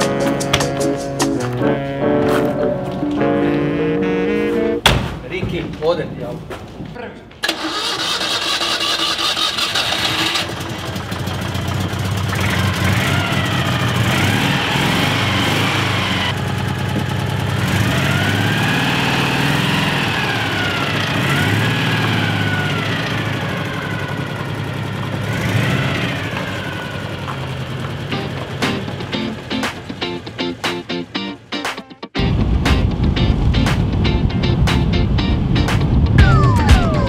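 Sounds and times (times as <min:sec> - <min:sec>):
car engine revving: 0:07.5 - 0:31.5.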